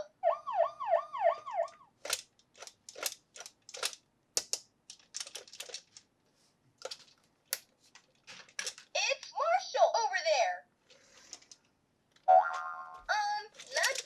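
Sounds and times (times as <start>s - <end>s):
electronic toy siren wailing: 0.0s - 1.9s
plastic toy parts clicking: 1.6s - 6.1s, 6.8s - 9.3s, 10.9s - 14.0s.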